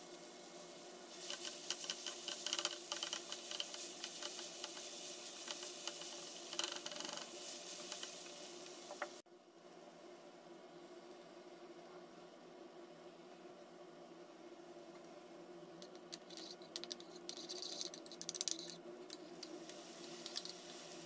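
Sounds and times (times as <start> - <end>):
vegetables sizzling in a frying pan: 0.0 - 9.2, 16.3 - 21.0
spatula scraping a pan: 1.2 - 9.2.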